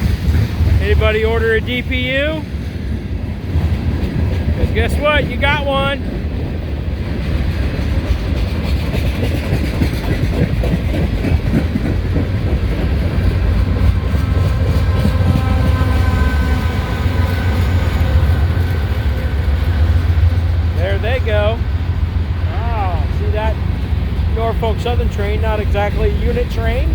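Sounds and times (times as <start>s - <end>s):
freight train rumbling past: 0.0s - 26.9s.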